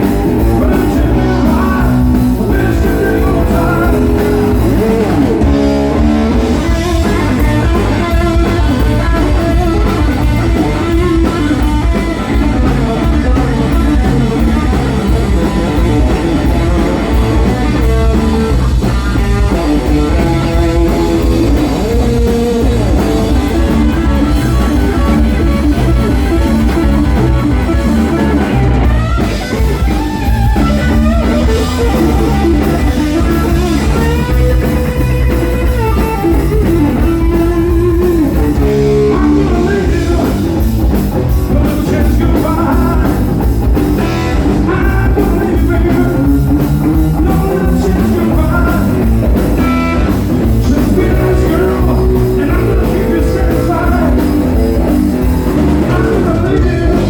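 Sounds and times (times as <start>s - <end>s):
electric guitar solo: 0.0s - 41.6s
blues band playing: 0.0s - 57.0s.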